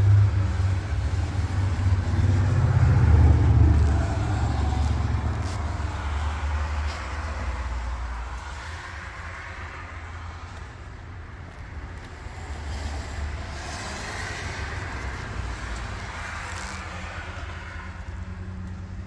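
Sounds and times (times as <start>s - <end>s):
diesel truck engine rumbling: 0.0s - 6.3s.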